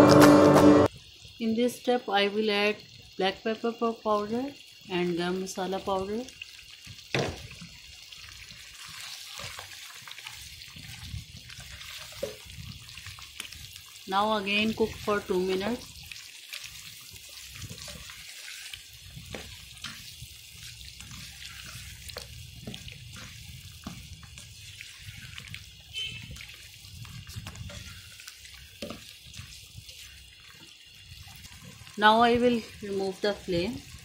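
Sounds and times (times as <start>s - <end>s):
chicken sizzling in a pan: 0.9s - 34.0s
spatula scraping and tapping pan: 17.6s - 25.6s, 27.3s - 30.7s.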